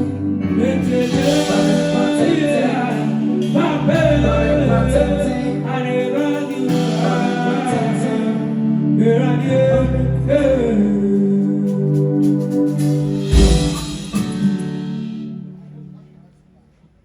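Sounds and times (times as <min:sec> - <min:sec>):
deep bass notes: 0:00.0 - 0:06.0, 0:13.1 - 0:15.1
person singing: 0:00.0 - 0:14.6
guitar: 0:00.0 - 0:16.3.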